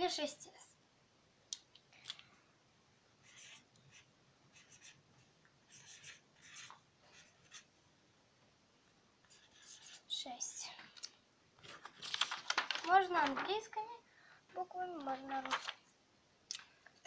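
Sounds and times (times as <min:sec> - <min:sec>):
marker scratching on paper: 0:03.2 - 0:07.7, 0:09.3 - 0:10.6.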